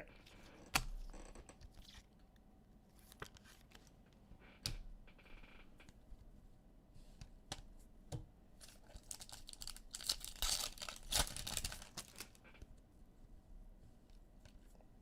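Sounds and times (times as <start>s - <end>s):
card wrappers crinkling and tearing: 8.6s - 12.4s.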